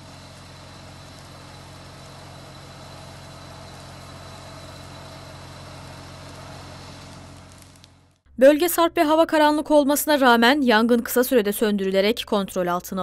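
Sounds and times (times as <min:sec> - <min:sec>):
truck engine idling: 0:00.0 - 0:08.2.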